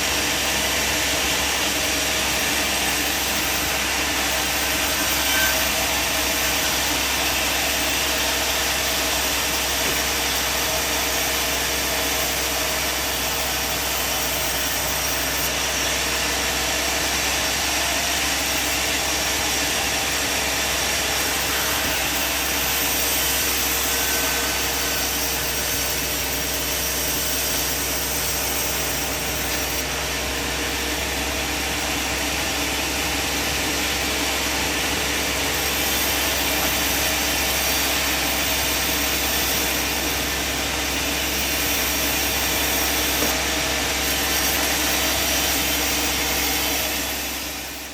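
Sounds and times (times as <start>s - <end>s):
sawmill machine running: 0.0s - 47.9s.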